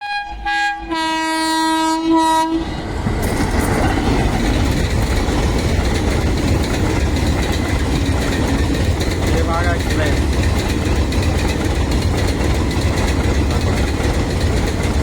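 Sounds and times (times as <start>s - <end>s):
locomotive horn: 0.0s - 2.9s
train rumbling past: 0.0s - 15.0s
wheels clicking over rail joints: 3.0s - 15.0s.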